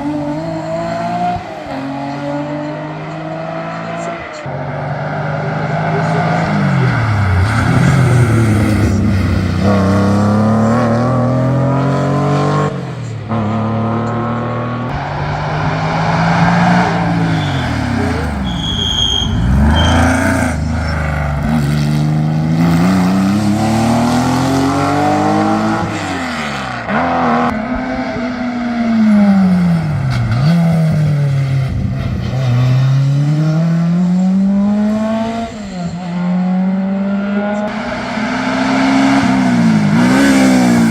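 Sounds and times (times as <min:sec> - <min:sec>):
race car engine revving: 0:00.0 - 0:40.9
brief high squeal: 0:17.3 - 0:20.3.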